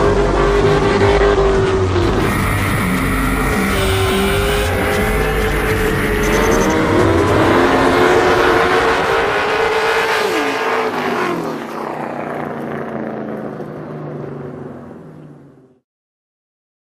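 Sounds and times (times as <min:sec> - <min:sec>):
vehicle engine running hard: 0:00.0 - 0:15.8.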